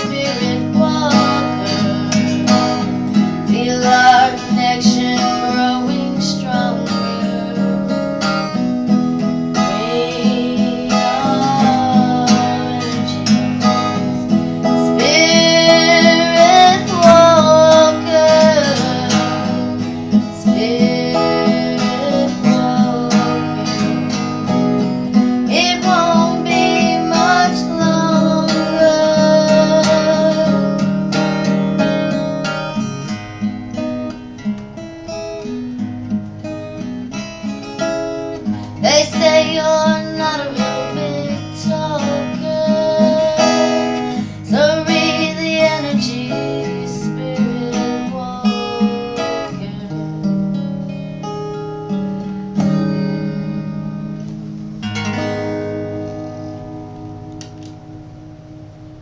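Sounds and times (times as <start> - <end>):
person singing: 0.0 - 8.7, 9.3 - 33.0, 38.4 - 51.0
strummed acoustic guitar: 0.0 - 59.0.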